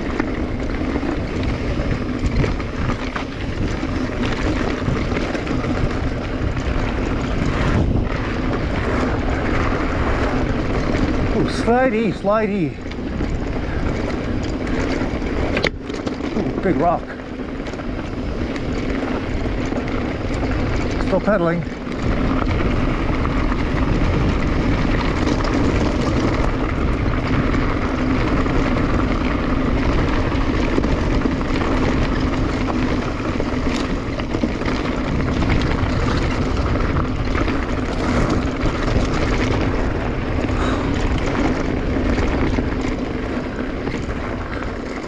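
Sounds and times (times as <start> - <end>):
bike clicks and rattles: 0.0 - 45.0
tyres on loose gravel: 0.0 - 45.0
wind on microphone: 0.0 - 45.0.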